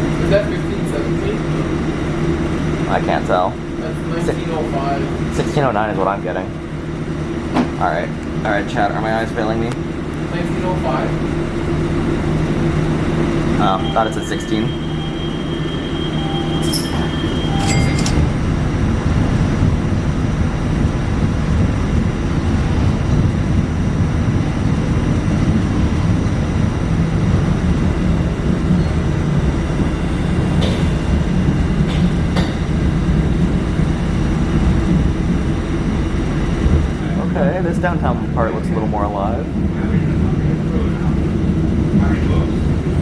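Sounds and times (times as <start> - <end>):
light rail car rumbling: 0.0 - 43.0
brief high tones and clicks: 13.8 - 18.4.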